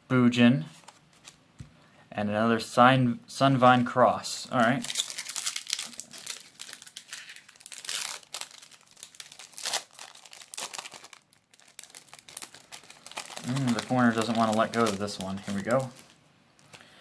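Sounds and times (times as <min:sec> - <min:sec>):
foil wrapper crinkling and tearing: 0:04.6 - 0:16.8.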